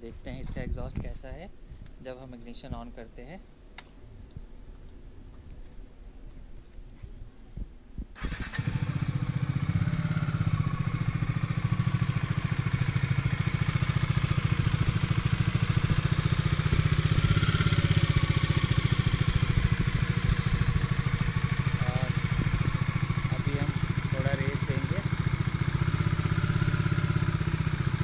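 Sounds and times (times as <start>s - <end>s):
motorcycle engine starting and idling: 8.0s - 28.0s.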